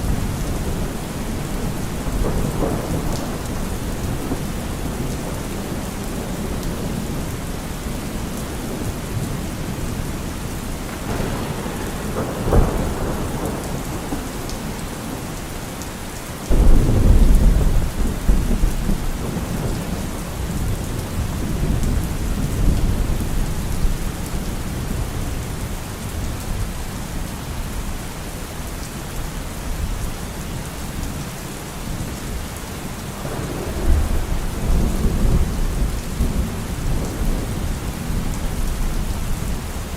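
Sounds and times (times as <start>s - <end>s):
thunder rumbling and cracking: 0.0s - 27.2s, 32.3s - 39.9s
heavy rain falling: 0.0s - 39.9s.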